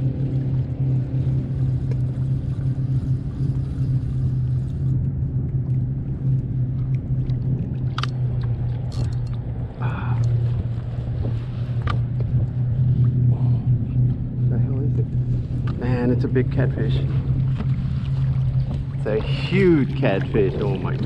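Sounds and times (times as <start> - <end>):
boat motor humming: 0.0 - 21.0.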